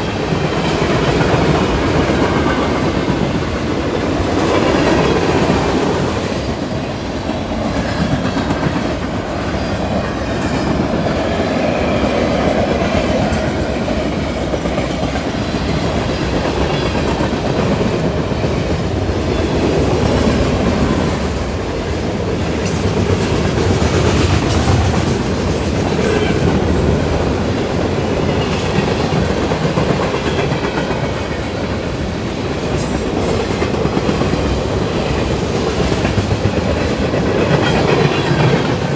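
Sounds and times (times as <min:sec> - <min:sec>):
train wheels clattering: 0:22.5 - 0:27.2.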